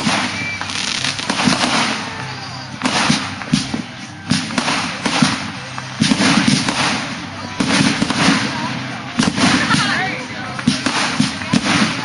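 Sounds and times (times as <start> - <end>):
continuous rushing noise: 0.0 - 12.0
firework bangs: 0.0 - 12.0.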